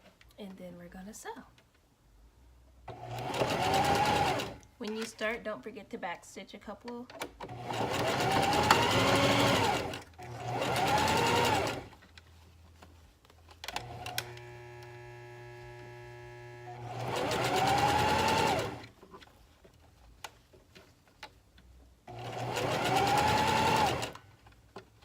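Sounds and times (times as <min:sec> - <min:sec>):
electric sewing machine stitching: 0:02.9 - 0:04.6, 0:07.4 - 0:12.0, 0:13.7 - 0:18.9, 0:22.1 - 0:24.2.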